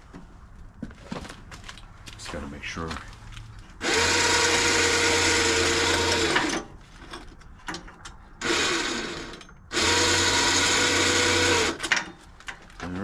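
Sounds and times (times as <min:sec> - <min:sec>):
electric winch motor running: 0:03.8 - 0:06.7, 0:08.4 - 0:12.0.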